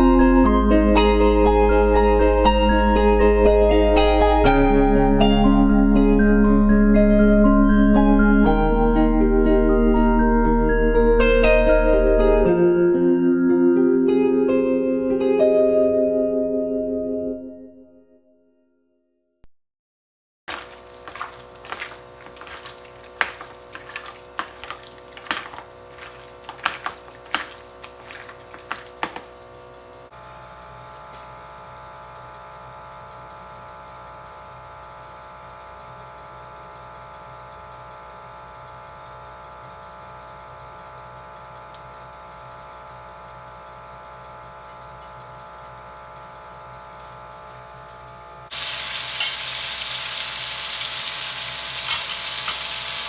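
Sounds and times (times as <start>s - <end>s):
food sizzling in hot oil: 20.5s - 29.0s, 48.5s - 53.0s
kitchen clicks and knocks: 20.5s - 29.4s.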